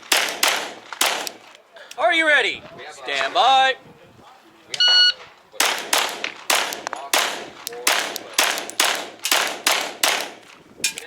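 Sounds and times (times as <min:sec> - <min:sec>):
pistol shots with echo: 0:00.0 - 0:01.4, 0:05.6 - 0:11.0.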